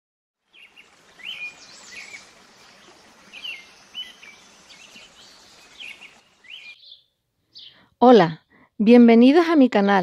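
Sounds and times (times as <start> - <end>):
background hiss: 0.4 - 7.8
small birds chirping: 0.4 - 8.8.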